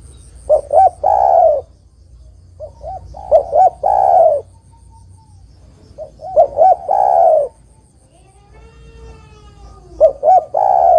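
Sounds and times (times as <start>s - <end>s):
dove cooing: 0.4s - 1.7s, 2.6s - 4.7s, 5.9s - 7.8s, 8.6s - 10.9s.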